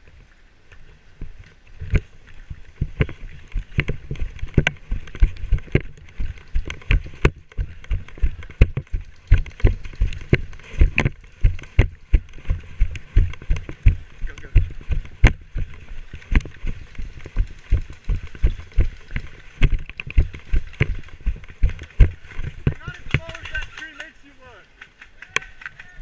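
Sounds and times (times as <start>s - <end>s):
running footsteps: 1.8s - 26.0s.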